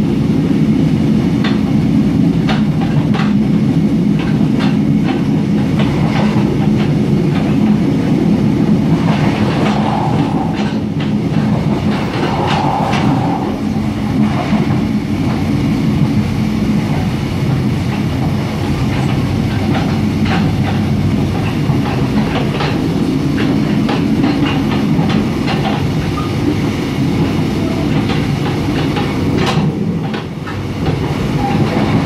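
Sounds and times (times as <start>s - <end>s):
train wheels rumbling on rail: 0.0s - 32.0s
wheels clicking over rail joints: 2.5s - 3.4s, 16.8s - 32.0s.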